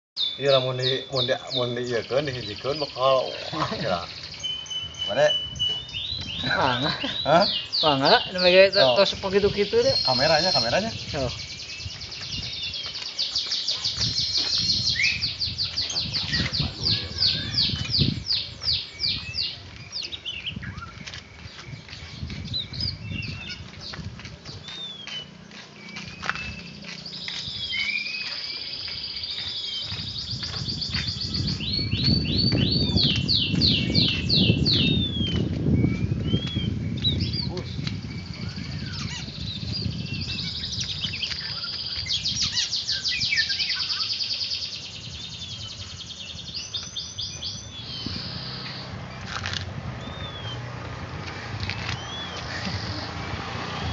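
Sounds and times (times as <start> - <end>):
bird chirps and whistles: 4.3 - 6.4, 11.6 - 21.0, 25.8 - 45.9, 46.6 - 48.9, 50.0 - 50.7, 51.7 - 53.0.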